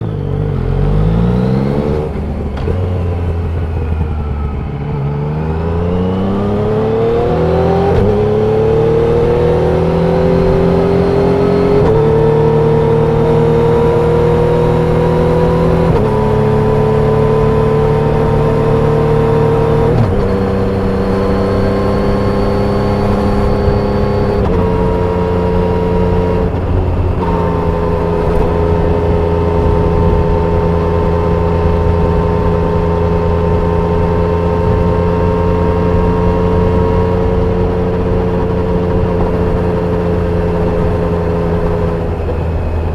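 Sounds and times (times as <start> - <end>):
motorcycle engine revving: 0.0 - 42.9
gear shifts: 10.0 - 32.6.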